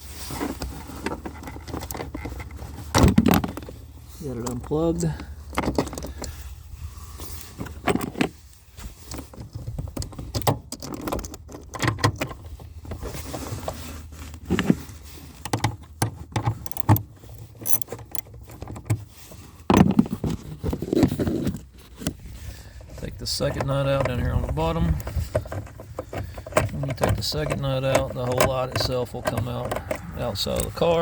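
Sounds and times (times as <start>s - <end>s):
plastic clicks and rattles: 9.1s - 12.4s, 15.5s - 19.0s.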